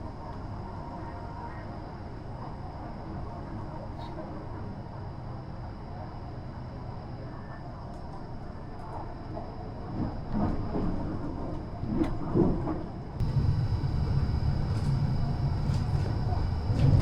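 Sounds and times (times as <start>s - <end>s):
electric train rumbling: 13.2s - 17.0s.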